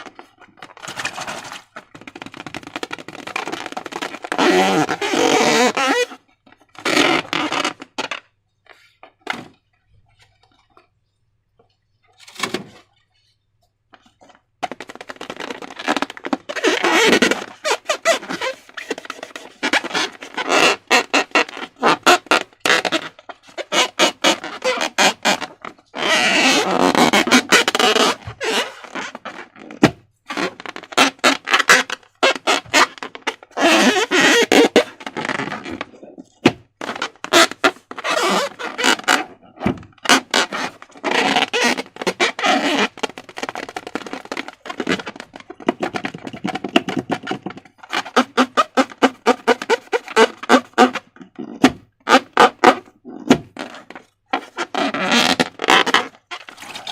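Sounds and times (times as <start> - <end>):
slime squelching and crackling: 54.5 - 56.9.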